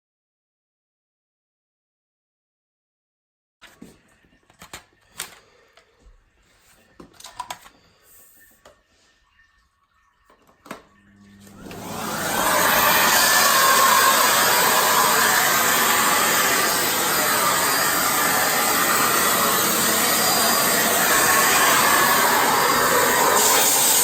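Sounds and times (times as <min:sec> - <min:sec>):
vacuum cleaner running: 0:11.2 - 0:24.0.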